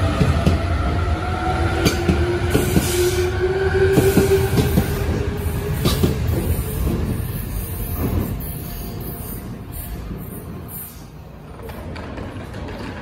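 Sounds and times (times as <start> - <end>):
electric train whine: 0.0 - 11.5
train low rumble: 0.0 - 13.0
wheels clicking over rail joints: 11.4 - 13.0.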